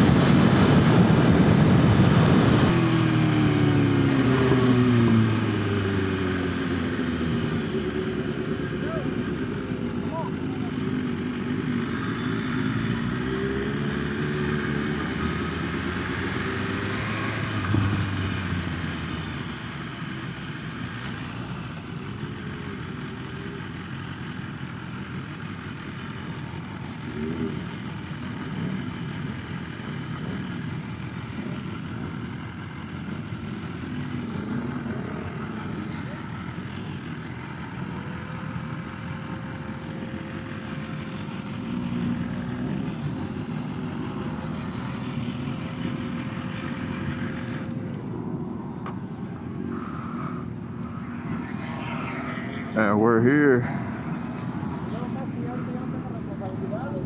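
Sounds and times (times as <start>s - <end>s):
wind rush on microphone: 0.0s - 5.6s
motorcycle engine running: 0.0s - 57.0s.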